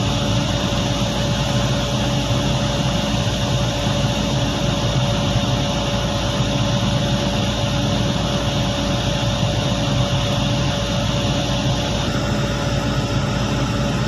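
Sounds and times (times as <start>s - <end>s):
constant hum: 0.0s - 14.0s
diesel engine droning: 11.8s - 14.0s.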